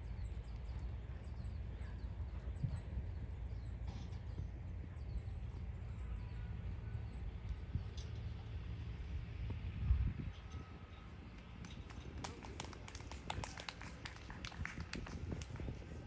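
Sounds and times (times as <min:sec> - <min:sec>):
small birds chirping: 0:00.0 - 0:12.1
steady low rumble: 0:00.0 - 0:16.0.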